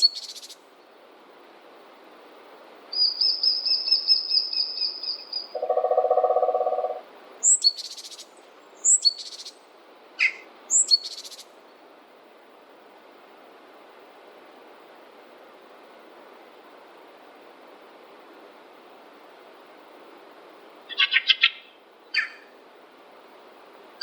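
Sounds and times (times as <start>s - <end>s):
high bird trill: 3.0s - 9.6s, 10.2s - 11.5s, 20.9s - 22.5s
rasping bird calls: 3.9s - 7.7s, 20.9s - 22.5s
low pulsing bird note: 5.6s - 7.0s.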